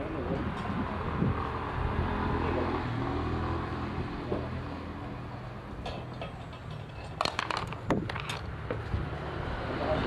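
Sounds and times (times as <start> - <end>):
sharp clicks and knocks: 5.8 - 8.8.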